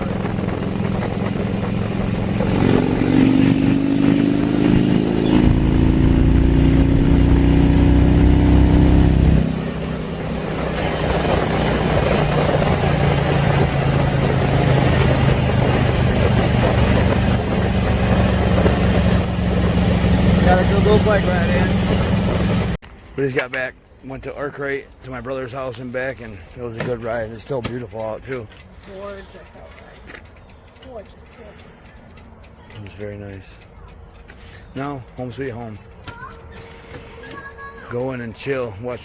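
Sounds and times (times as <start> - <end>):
motorcycle engine: 0.0 - 22.8.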